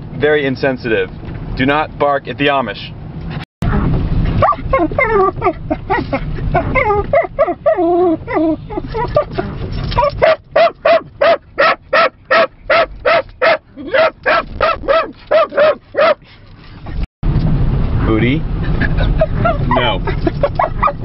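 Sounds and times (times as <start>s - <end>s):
car road noise: 0.0s - 21.0s
small dog yipping and whining: 3.7s - 11.0s, 20.5s - 21.0s
dog barking rapidly: 4.4s - 9.3s, 10.0s - 16.2s, 20.5s - 21.0s.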